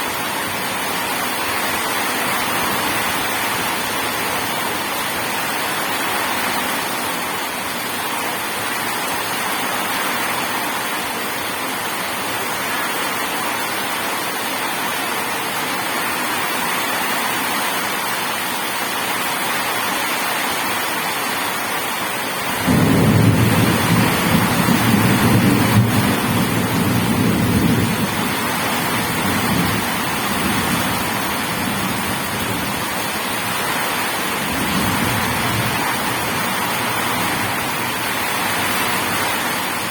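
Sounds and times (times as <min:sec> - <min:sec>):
heavy rain hissing: 0:00.0 - 0:39.9
thunder rumbling: 0:22.6 - 0:39.8.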